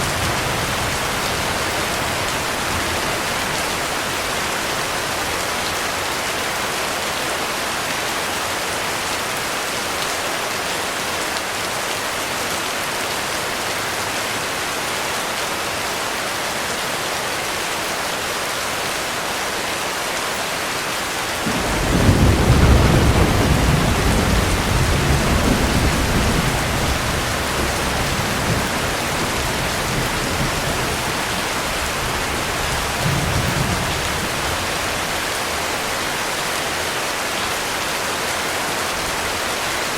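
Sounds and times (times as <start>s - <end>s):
thunder rumbling: 0.0s - 4.4s, 21.4s - 35.2s
heavy rain falling: 0.0s - 39.9s.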